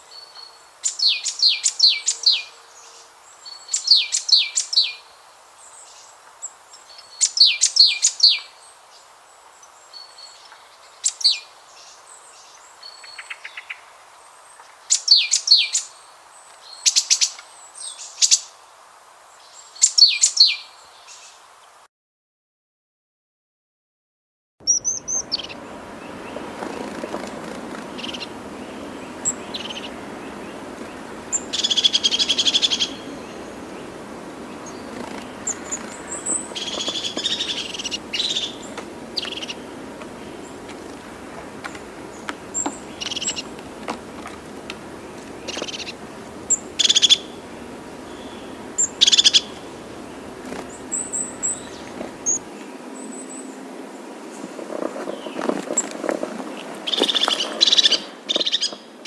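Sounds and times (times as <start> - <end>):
birds chirping: 24.6 - 59.0
birds trilling: 24.7 - 53.5
steady background noise: 24.7 - 59.0.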